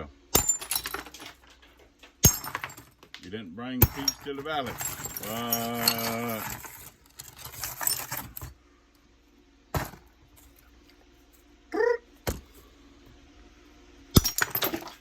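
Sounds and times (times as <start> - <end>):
ceramic shards clinking: 0.4 - 1.6, 2.2 - 3.0, 3.8 - 8.5, 14.2 - 15.0
man humming: 11.7 - 12.1.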